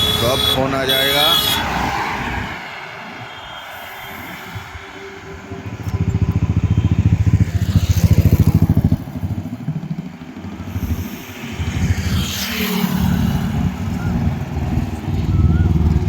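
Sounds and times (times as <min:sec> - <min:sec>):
vehicles rushing past: 0:00.0 - 0:16.0
engine running with low pulsing: 0:05.6 - 0:16.0.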